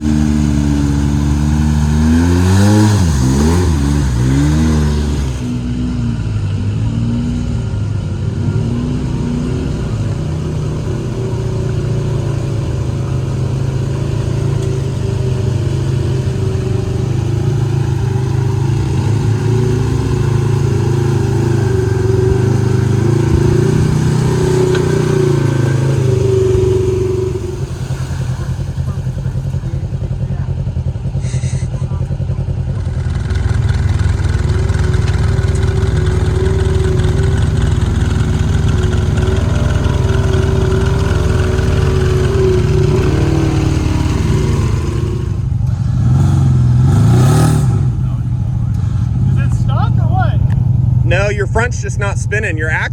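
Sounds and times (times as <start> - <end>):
utility vehicle engine revving: 0.0 - 52.9.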